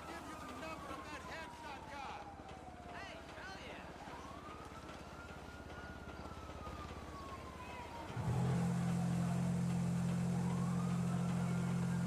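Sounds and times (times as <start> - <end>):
siren wailing: 0.0 - 12.0
loud steady low hum: 8.2 - 12.0.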